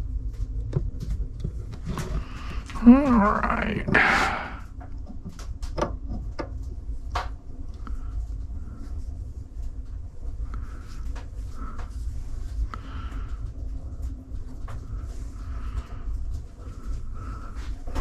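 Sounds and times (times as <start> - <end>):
steady low hum: 0.0 - 18.0
sharp clicks and knocks: 3.8 - 7.9.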